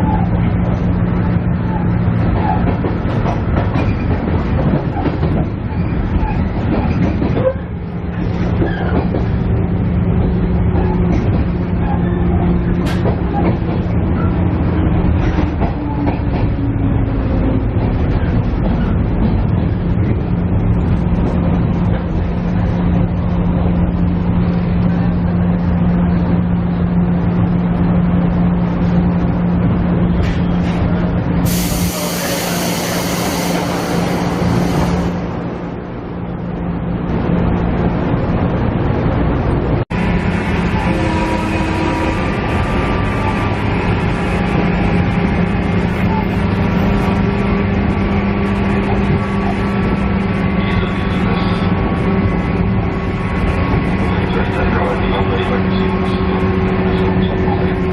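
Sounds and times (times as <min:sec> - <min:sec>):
train wheels rumbling: 0:00.0 - 0:57.9
loud air hiss: 0:31.5 - 0:35.2.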